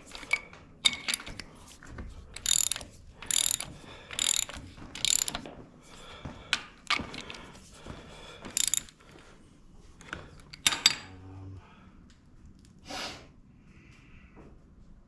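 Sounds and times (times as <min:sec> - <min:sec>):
ratchet wrench clicking: 0:00.0 - 0:01.4, 0:02.4 - 0:05.4, 0:08.5 - 0:09.0
tools clanking on metal: 0:00.0 - 0:01.5, 0:02.3 - 0:05.6, 0:06.5 - 0:07.5, 0:08.4 - 0:09.1, 0:10.0 - 0:11.2.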